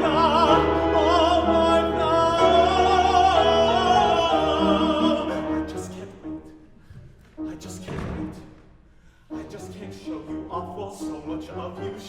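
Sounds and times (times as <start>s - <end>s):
piano accompaniment: 0.0s - 6.6s
operatic singing with vibrato: 0.0s - 6.7s, 9.2s - 12.0s.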